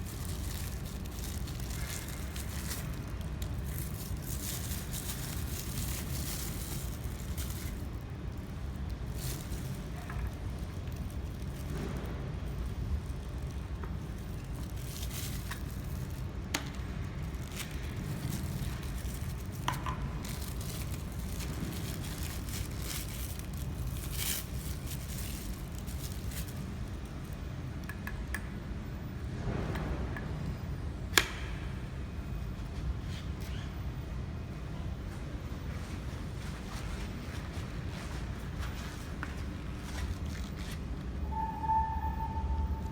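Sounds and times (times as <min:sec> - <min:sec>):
low machine hum: 0:00.0 - 0:42.9.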